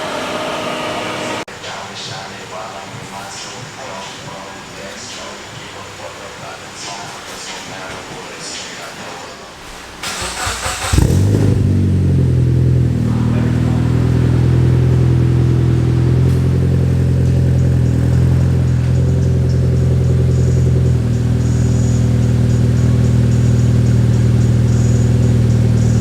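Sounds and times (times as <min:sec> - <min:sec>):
starter motor cranking: 0:10.0 - 0:12.2, 0:14.7 - 0:26.0
car engine idling loudly: 0:10.0 - 0:26.0.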